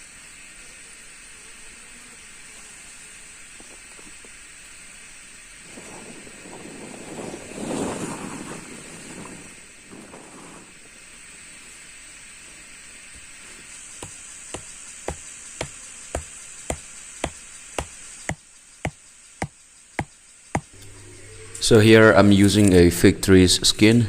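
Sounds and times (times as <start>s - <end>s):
tool knocking on wood: 14.0s - 20.7s.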